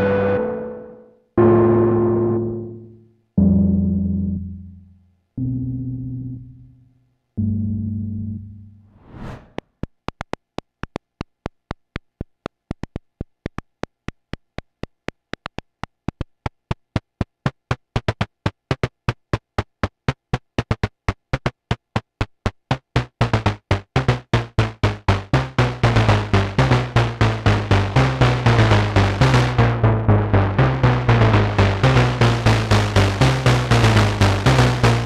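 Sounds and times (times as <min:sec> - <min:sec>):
synthesizer staccato notes: 0:00.0 - 0:04.8, 0:22.7 - 0:35.0
low synth bass line: 0:00.0 - 0:08.9, 0:23.0 - 0:35.0.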